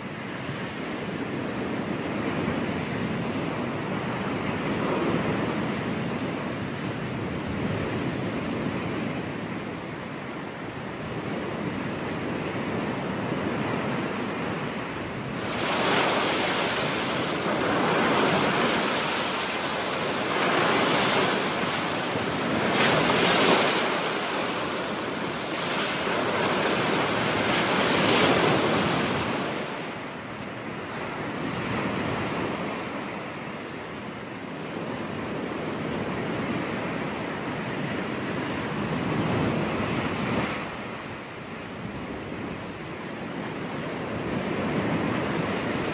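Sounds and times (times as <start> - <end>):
ocean waves crashing on beach: 0.0 - 45.9.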